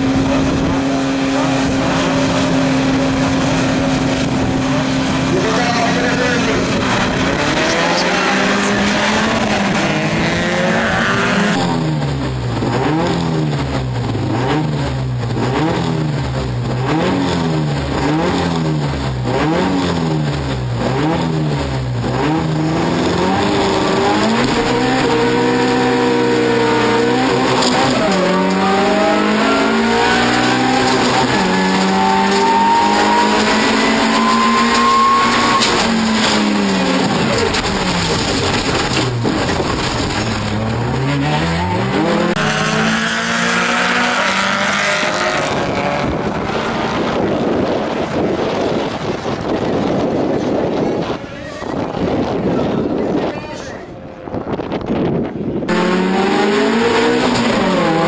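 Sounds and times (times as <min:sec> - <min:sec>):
car engine revving: 0:00.0 - 0:51.1, 0:55.6 - 0:58.0
car accelerating hard: 0:00.0 - 0:52.5, 0:55.6 - 0:58.0
rally car engines revving: 0:00.0 - 0:58.0.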